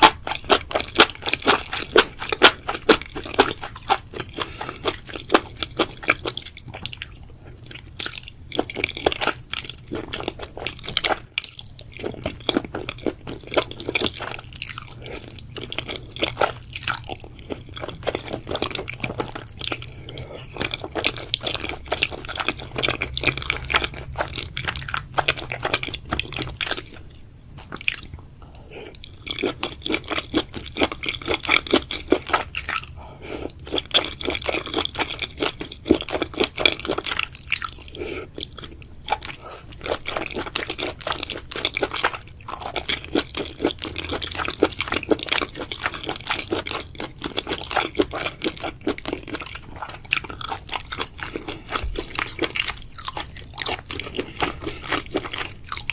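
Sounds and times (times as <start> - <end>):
person chewing food: 0.0 - 55.9.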